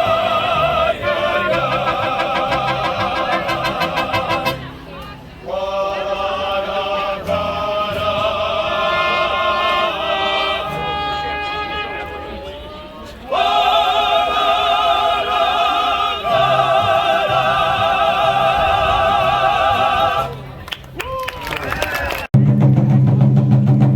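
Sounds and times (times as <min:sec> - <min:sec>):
live mariachi music: 0:00.0 - 0:05.2, 0:07.3 - 0:13.3.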